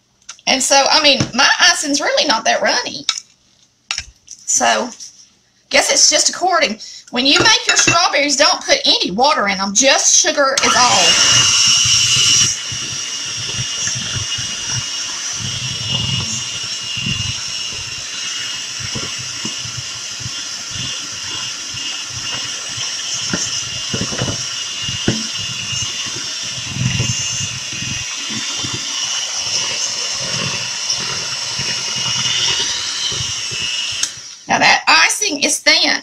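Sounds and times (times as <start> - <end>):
electric mixer motor whine: 10.6 - 34.5.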